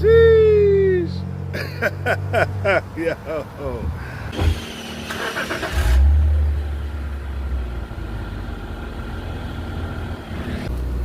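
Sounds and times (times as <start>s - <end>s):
car engine and exhaust rumbling: 0.0s - 11.0s.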